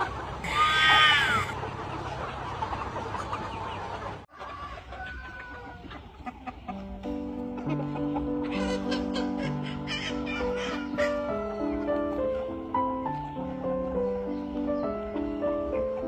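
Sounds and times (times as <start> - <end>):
loud drawn-out chicken call: 0.0 - 1.6, 8.4 - 11.4
chickens clucking: 0.0 - 16.0
music with held notes: 6.2 - 16.0.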